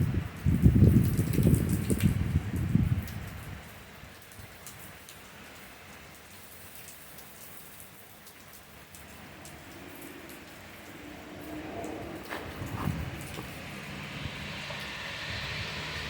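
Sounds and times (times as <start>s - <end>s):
wind rumbling on microphone: 0.0s - 4.6s, 9.8s - 16.0s
raindrop ticks: 0.4s - 14.0s
heavy rain hissing: 8.0s - 16.0s.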